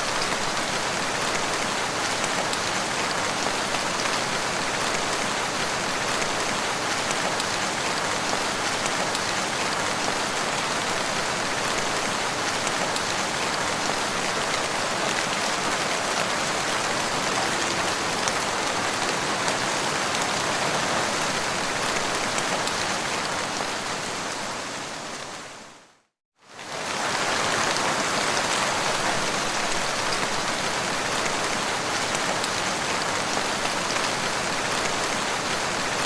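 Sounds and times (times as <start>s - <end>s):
dense rain falling: 0.0s - 36.0s.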